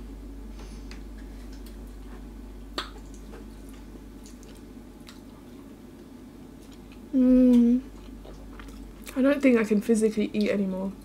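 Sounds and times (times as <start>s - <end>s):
person chewing food: 2.8s - 9.2s.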